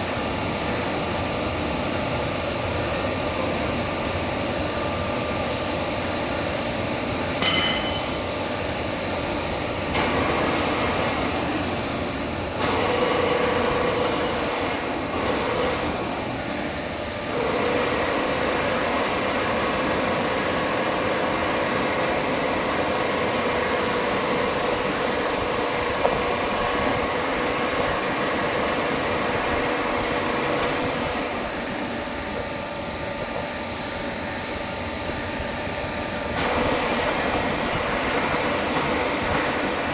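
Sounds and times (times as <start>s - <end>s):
lathe running: 0.0s - 32.9s
sharp metallic clink: 7.2s - 8.3s.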